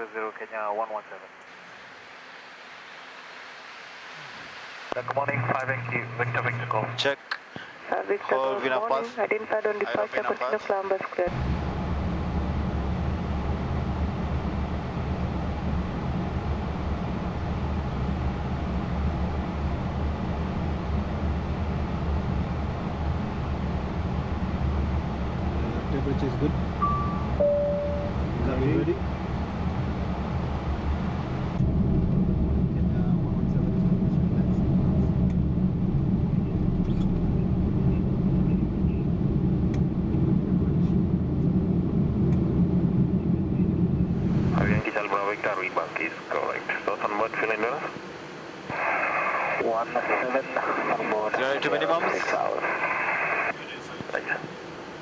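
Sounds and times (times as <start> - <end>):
low hum: 4.2 - 10.1, 11.2 - 55.0
airflow and engine rumble: 4.2 - 55.0.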